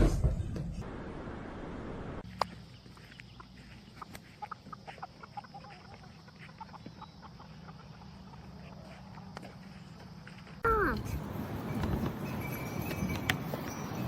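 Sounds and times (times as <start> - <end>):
bird-like clucks or chirps: 2.2 - 10.4.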